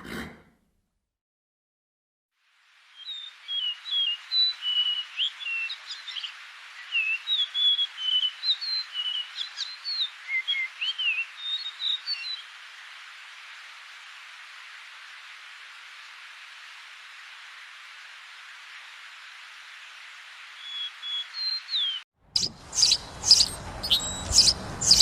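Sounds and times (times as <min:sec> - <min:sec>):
steady background hiss: 0:02.4 - 0:25.0
songbird singing: 0:02.9 - 0:12.6, 0:20.6 - 0:25.0.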